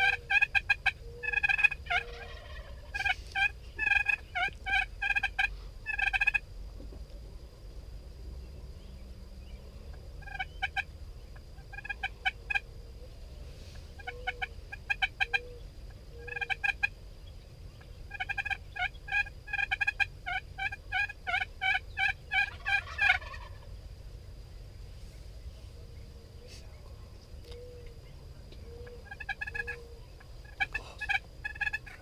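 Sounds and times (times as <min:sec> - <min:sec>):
turkeys gobbling: 0:00.0 - 0:06.4, 0:10.2 - 0:12.6, 0:14.0 - 0:17.0, 0:17.8 - 0:23.7, 0:28.5 - 0:32.0.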